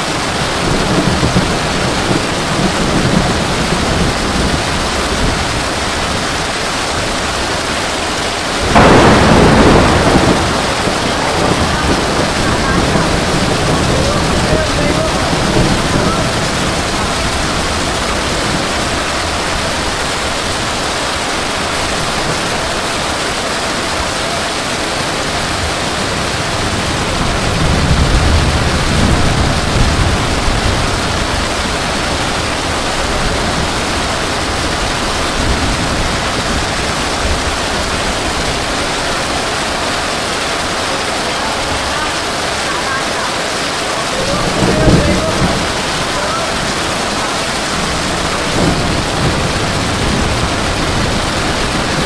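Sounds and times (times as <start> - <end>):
heavy rain pouring: 0.0 - 52.0
low rumble: 24.1 - 38.8.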